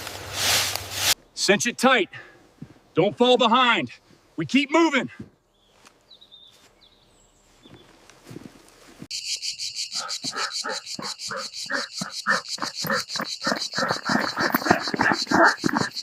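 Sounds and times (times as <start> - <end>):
insects high pulsing trill: 9.1 - 16.0
lower rhythmic insect pulsing: 9.1 - 16.0.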